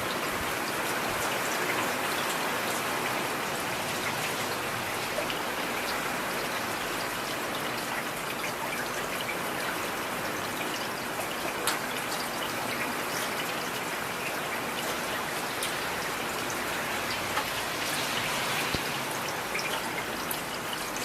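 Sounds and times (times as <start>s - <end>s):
heavy rain: 0.0s - 21.0s.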